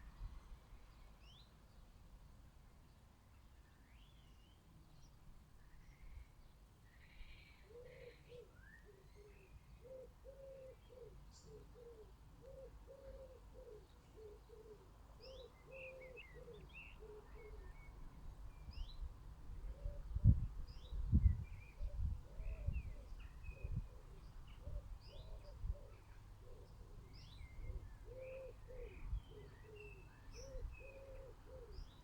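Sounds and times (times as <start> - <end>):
pigeon cooing: 9.8 - 17.6, 23.8 - 32.0.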